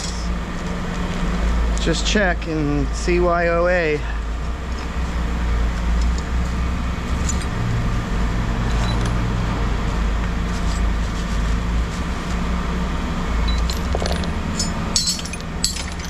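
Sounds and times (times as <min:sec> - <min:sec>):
engine running: 0:00.0 - 0:16.0
light metal clinks: 0:13.5 - 0:16.0.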